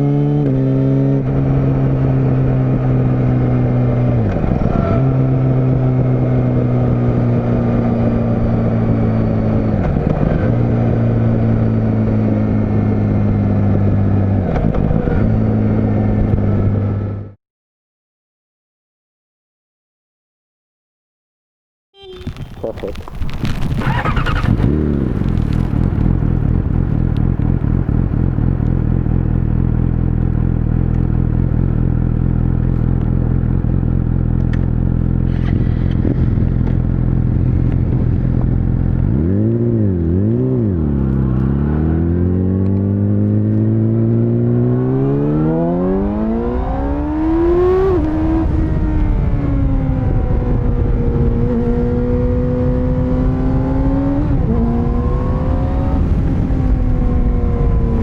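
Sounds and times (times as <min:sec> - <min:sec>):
motorcycle engine revving: 0:00.0 - 0:17.4, 0:22.0 - 0:58.0
motorcycle gear shift: 0:22.0 - 0:26.2.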